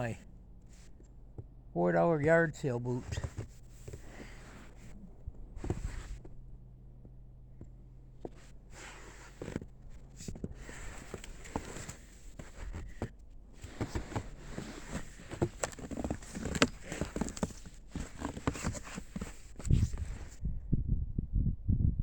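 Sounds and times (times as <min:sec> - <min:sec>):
footsteps crunching in snow: 0:08.7 - 0:20.4.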